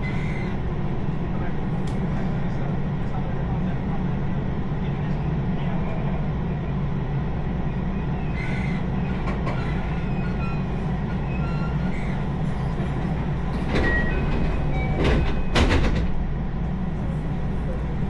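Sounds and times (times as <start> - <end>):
train rumbling inside carriage: 0.0 - 18.0
sharp high squeal: 9.5 - 12.2.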